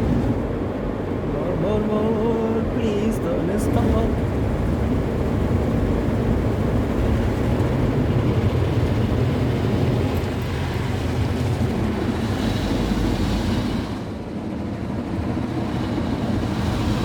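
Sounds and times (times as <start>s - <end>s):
car wash rumble: 0.0s - 17.0s
car wash hiss: 10.6s - 14.1s, 15.8s - 17.0s.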